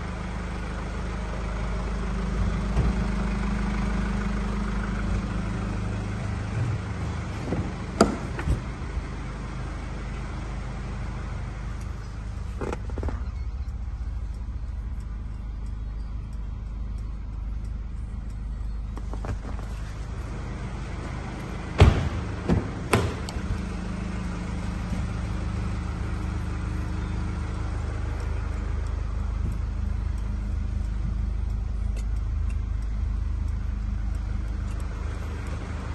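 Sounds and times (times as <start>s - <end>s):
diesel engine idling: 0.0s - 35.9s
sharp knocks: 7.4s - 8.7s, 21.8s - 23.4s.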